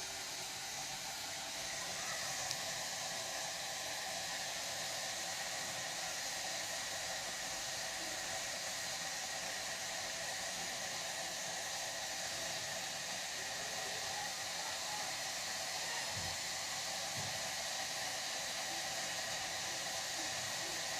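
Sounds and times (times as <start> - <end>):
steady hiss: 0.0 - 20.9.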